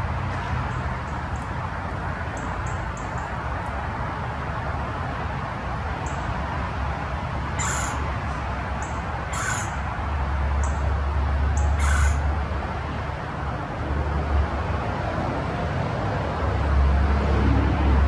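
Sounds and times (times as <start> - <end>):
bird calls: 7.6 - 8.0, 8.8 - 9.8, 11.6 - 12.2.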